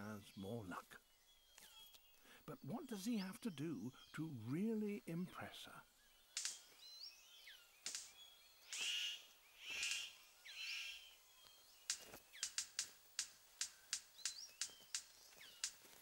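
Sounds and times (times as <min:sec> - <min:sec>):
thin bird chirps: 0:00.0 - 0:12.9, 0:13.6 - 0:15.9
harsh hissing bird calls: 0:01.7 - 0:15.9
sharp bird clicks: 0:06.3 - 0:11.0, 0:11.8 - 0:16.0.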